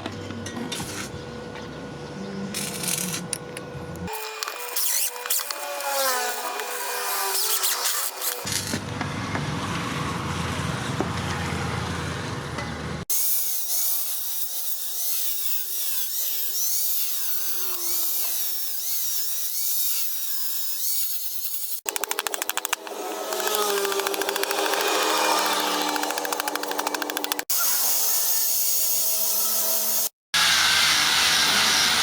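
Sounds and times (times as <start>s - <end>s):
power tool whining: 21.5s - 27.8s
power tool clattering: 21.6s - 27.5s
power tool rumbling: 21.8s - 27.5s.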